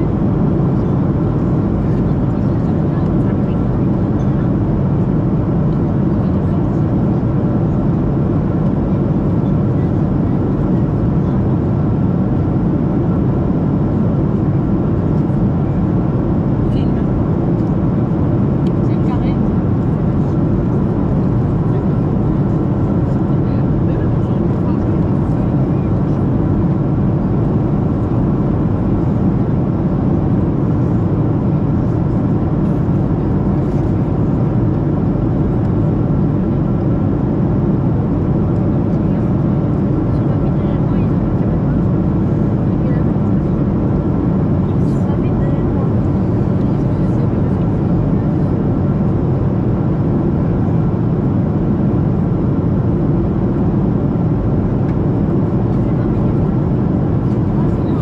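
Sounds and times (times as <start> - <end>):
airplane cabin jet engine rush: 0.0 - 58.0.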